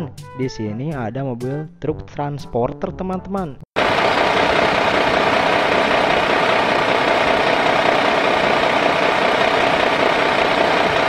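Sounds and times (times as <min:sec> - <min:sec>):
truck engine running: 0:03.8 - 0:11.0.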